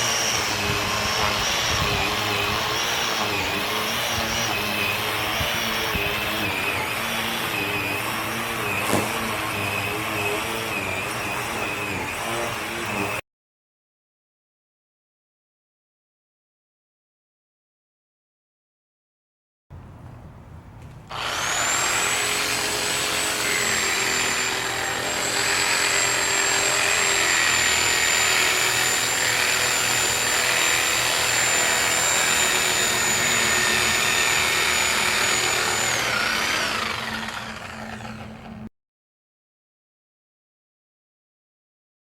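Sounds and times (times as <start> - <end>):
reciprocating saw cutting soil: 0.0 - 13.2, 20.9 - 38.7.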